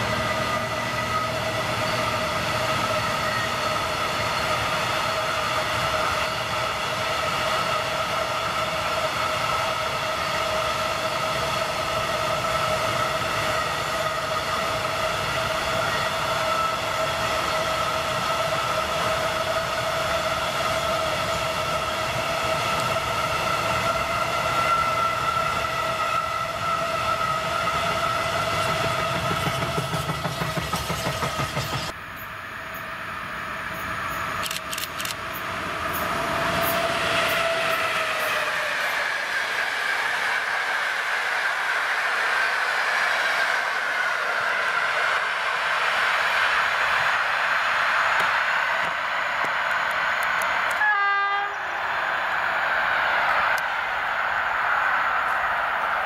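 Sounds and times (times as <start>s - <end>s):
freight train rolling on rails: 0.0s - 56.0s.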